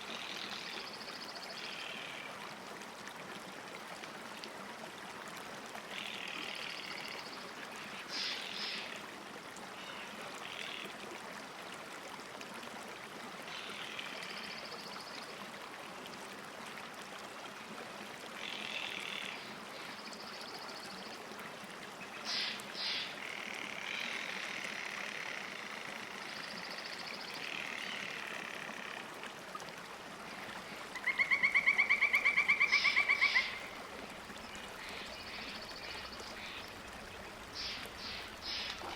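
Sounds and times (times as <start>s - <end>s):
lake water washing: 28.6s - 38.9s.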